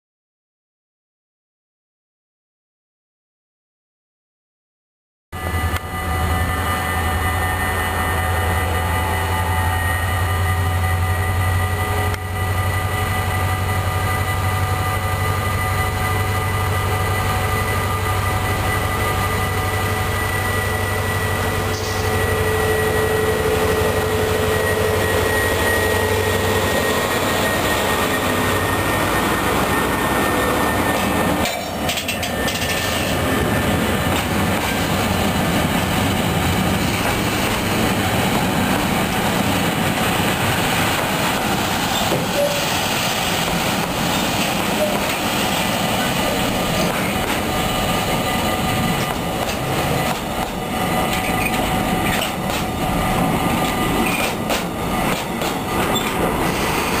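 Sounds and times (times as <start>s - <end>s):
locomotive engine drone: 5.4s - 57.0s.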